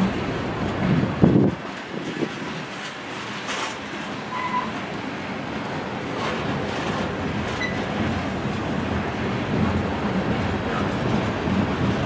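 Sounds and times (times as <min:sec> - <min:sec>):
freight train wheels rumbling: 0:00.0 - 0:12.0
high-pitched wheel squeal: 0:04.3 - 0:04.8, 0:07.6 - 0:07.8.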